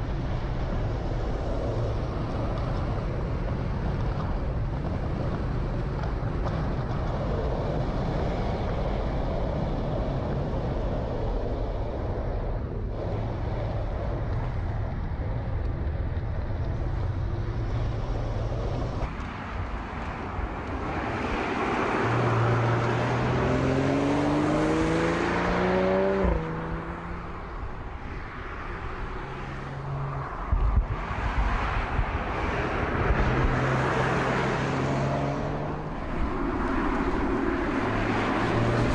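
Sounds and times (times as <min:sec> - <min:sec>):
road and wind noise: 0:00.0 - 0:38.9
car engine accelerating: 0:21.5 - 0:30.8, 0:32.6 - 0:36.2.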